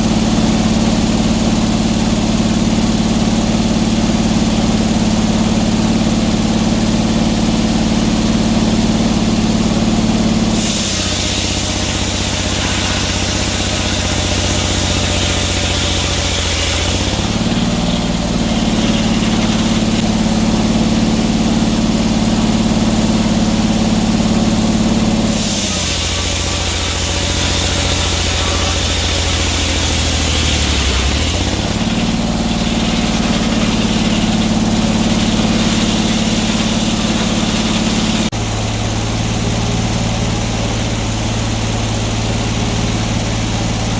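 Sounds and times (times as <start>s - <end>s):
sawmill engine running: 0.0s - 43.9s
saw cutting wood with high hiss: 8.1s - 38.5s.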